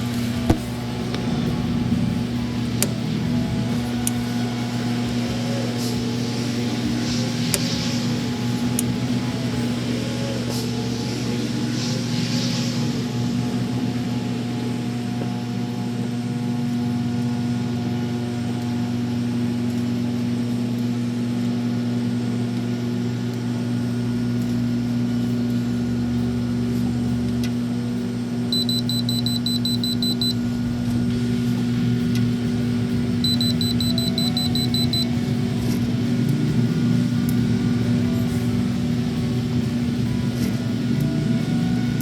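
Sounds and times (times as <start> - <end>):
microwave oven humming: 0.0 - 42.0
high electronic beeps: 28.5 - 30.4, 33.2 - 35.2.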